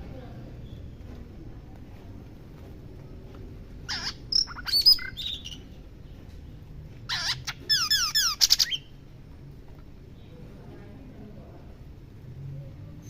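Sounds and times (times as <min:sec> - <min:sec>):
bird singing whistled notes: 0:04.3 - 0:05.6.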